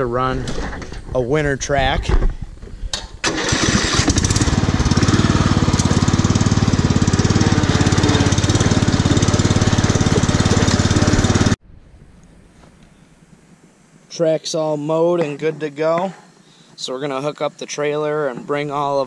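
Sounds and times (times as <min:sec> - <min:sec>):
lawn tractor engine running: 0:03.2 - 0:11.6.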